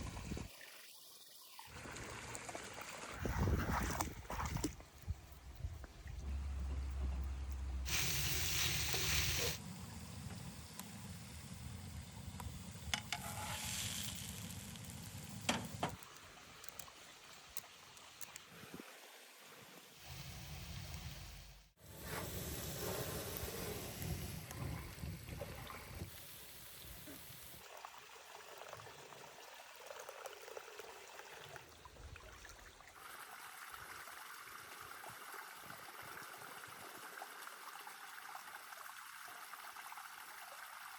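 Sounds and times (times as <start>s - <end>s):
food sizzling in a pan: 13.2s - 15.4s
faint running water: 22.0s - 40.9s.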